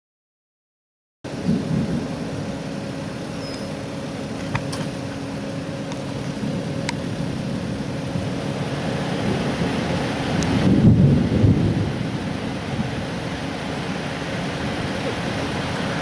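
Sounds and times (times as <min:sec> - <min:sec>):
vehicle engine idling: 0:01.3 - 0:10.5.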